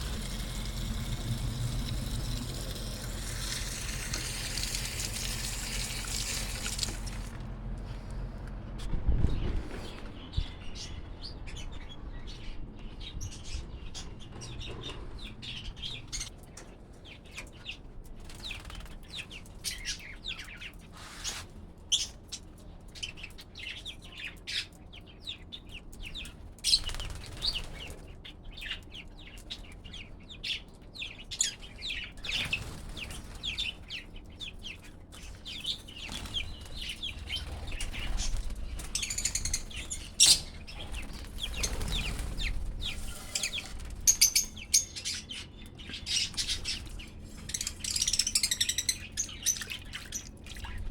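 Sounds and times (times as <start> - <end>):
wings flapping: 26.7 - 28.0, 40.8 - 44.2
parrots chirping: 47.4 - 49.9.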